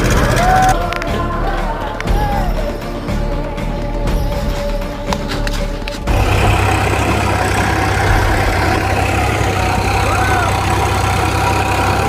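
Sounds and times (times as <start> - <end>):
vehicle engine and road noise: 5.4 - 12.0.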